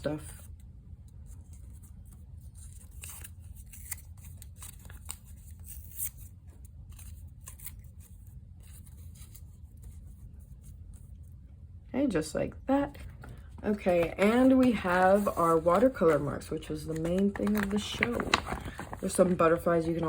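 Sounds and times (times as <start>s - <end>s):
low steady hum: 0.0s - 20.0s
paper rustling and clicking: 12.9s - 19.9s.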